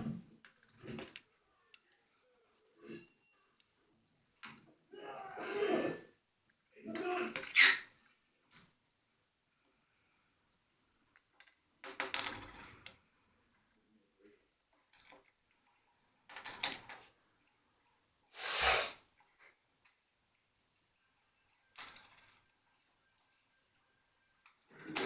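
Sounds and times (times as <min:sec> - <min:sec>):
coin and paperclip clinking: 0:21.8 - 0:22.4, 0:24.7 - 0:25.0.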